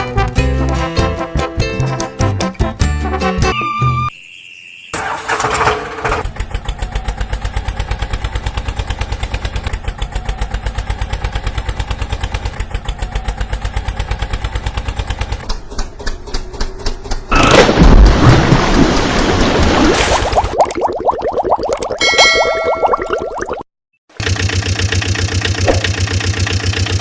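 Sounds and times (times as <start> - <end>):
diesel engine chugging idle: 24.2 - 27.0.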